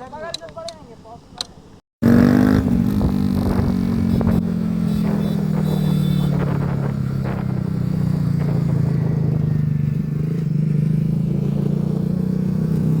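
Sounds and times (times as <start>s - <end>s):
motorcycle engine cruising: 2.0s - 13.0s.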